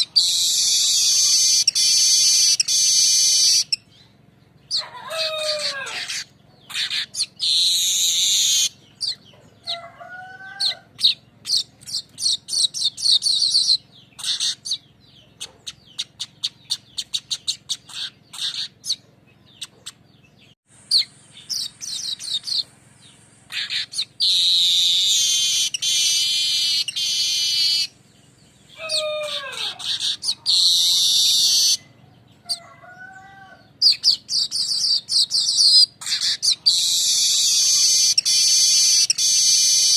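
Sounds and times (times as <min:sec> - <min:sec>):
bird ticking chatter: 0:00.0 - 0:04.1, 0:11.0 - 0:29.0, 0:33.8 - 0:39.9
bird buzzy song: 0:00.0 - 0:39.9.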